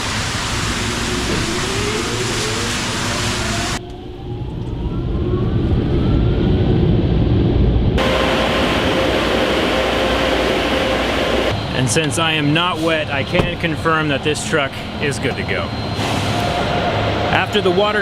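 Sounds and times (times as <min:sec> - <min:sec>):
low rumble: 0:00.8 - 0:09.0.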